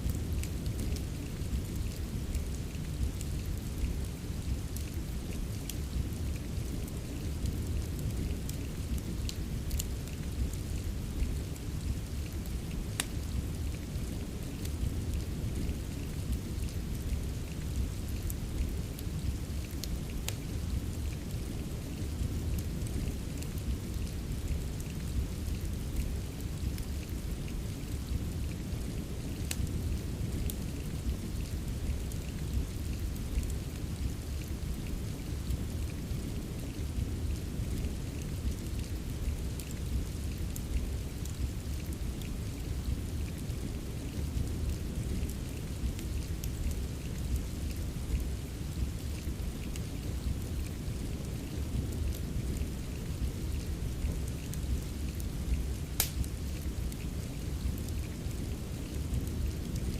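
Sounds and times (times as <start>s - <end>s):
steady rain: 0.0s - 59.9s
wood fire crackling: 0.0s - 59.9s.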